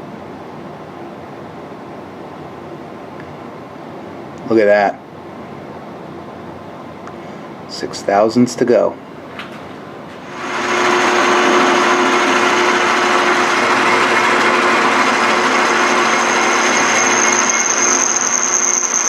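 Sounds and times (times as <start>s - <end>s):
high whine of cutting: 10.2s - 19.0s
lathe motor whirring: 10.2s - 19.0s.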